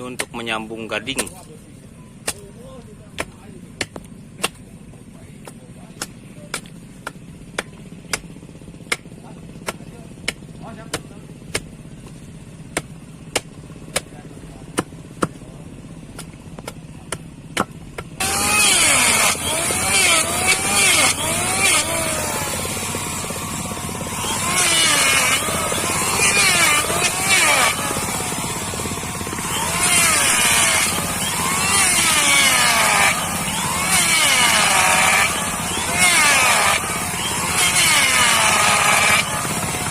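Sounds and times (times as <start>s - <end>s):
sharp knocks: 5.4s - 11.7s
engine-like sound wavering pitch: 18.2s - 39.9s
saw strokes rasping: 18.2s - 39.9s.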